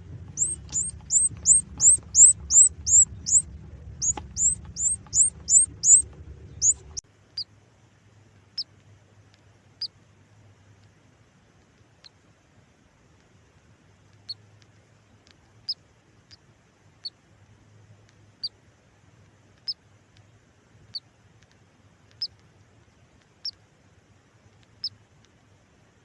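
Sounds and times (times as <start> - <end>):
incubator low hum: 0.0 - 7.0
chick peeping: 0.0 - 7.5.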